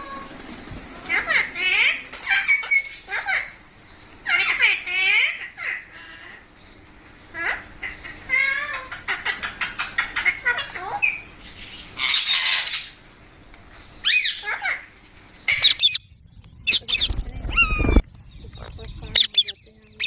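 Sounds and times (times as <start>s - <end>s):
parakeet harsh rasping call: 7.3s - 13.0s, 14.0s - 18.0s
parakeet chirps: 13.9s - 14.8s, 15.4s - 20.0s
parakeet sharp screeches: 15.5s - 16.0s, 16.7s - 18.0s.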